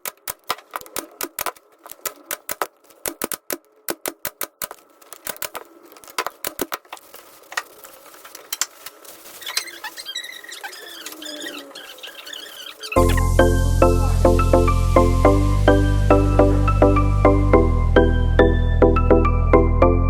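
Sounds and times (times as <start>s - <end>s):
hand tools clicking and tapping: 0.0s - 7.0s
music: 13.0s - 20.0s.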